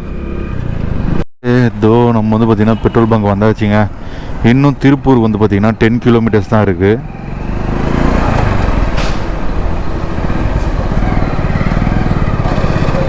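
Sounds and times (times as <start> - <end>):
motorcycle engine running: 9.6 - 13.0.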